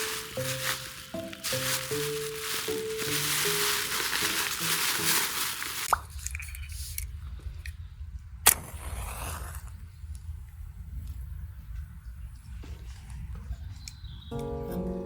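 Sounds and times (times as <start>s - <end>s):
background music: 0.0s - 5.6s, 14.3s - 15.0s.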